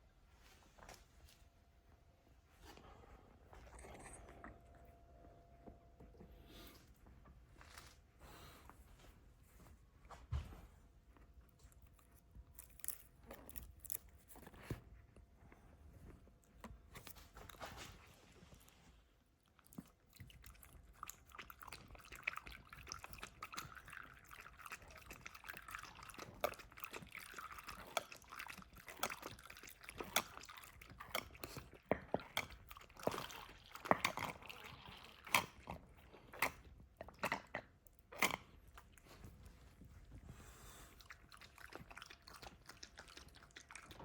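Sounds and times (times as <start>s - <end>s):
dog chewing and crunching food: 11.2s - 44.0s.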